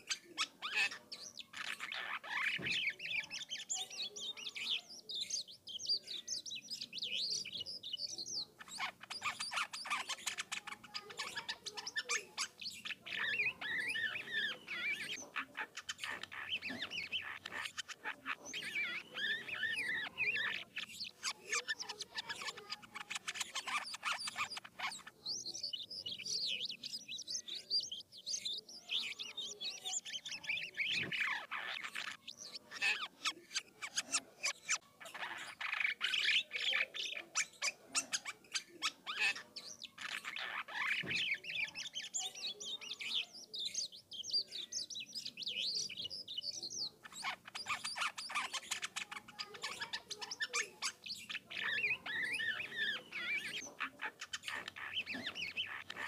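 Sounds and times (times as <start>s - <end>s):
starling singing varied song: 0.0s - 56.0s.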